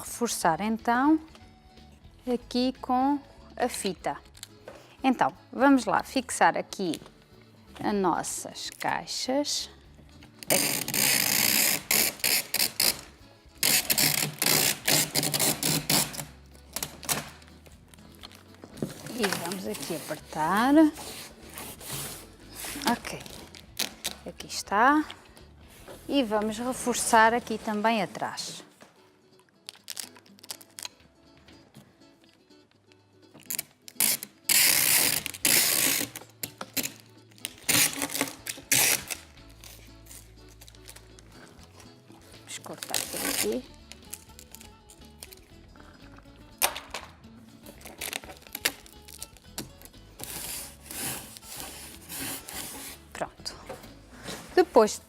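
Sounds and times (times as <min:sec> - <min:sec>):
packing tape pulled off roll: 0:10.3 - 0:24.3, 0:29.6 - 0:31.0, 0:33.4 - 0:45.5, 0:47.6 - 0:53.1.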